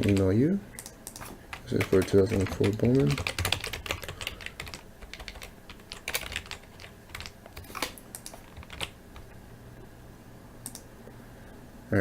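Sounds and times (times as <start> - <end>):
typing on computer keyboard: 0.0 - 9.0.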